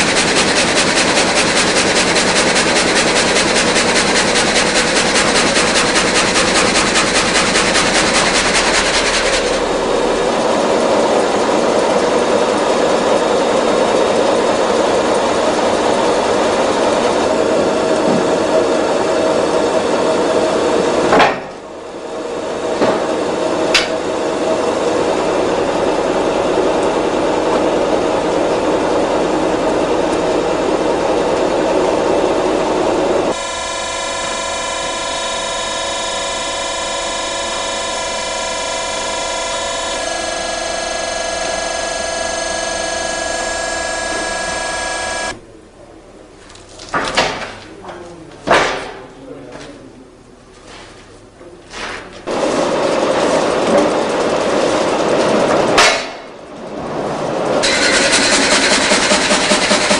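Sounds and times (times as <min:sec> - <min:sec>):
rip saw machine running: 0:00.0 - 0:45.4, 0:52.3 - 0:56.7, 0:57.3 - 0:59.9
sharp knocks: 0:23.7 - 0:24.0.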